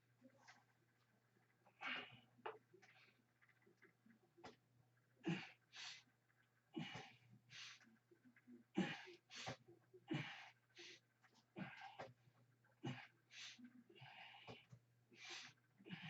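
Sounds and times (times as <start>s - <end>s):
man breathing heavily: 5.2s - 6.1s, 6.7s - 7.9s, 8.7s - 16.0s.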